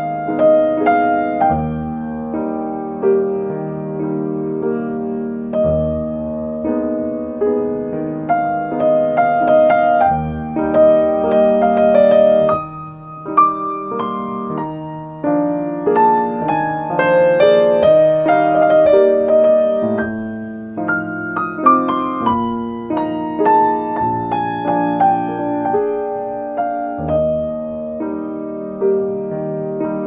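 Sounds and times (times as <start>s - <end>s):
solo piano music: 0.0s - 30.0s.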